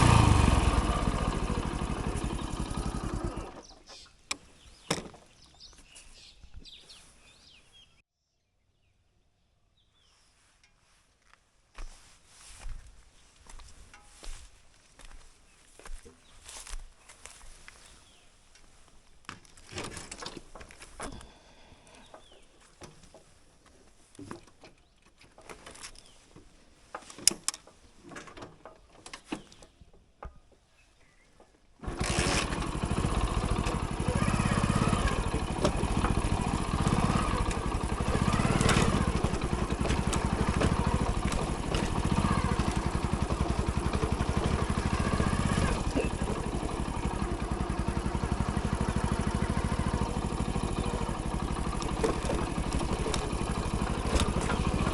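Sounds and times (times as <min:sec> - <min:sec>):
motorcycle engine running: 0:00.0 - 0:03.8, 0:31.8 - 0:54.9
faint rustles: 0:10.0 - 0:28.1.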